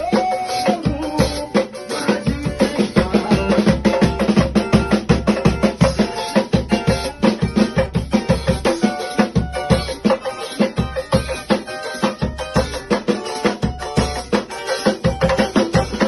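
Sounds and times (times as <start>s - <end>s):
band playing worship music: 0.0s - 16.0s
drums fast beat: 0.0s - 16.0s.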